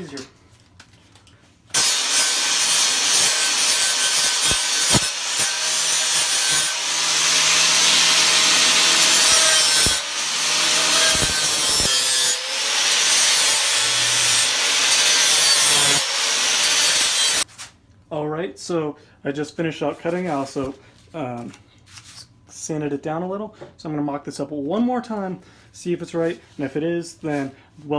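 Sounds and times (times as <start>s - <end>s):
angle grinder grinding metal: 1.8s - 17.4s.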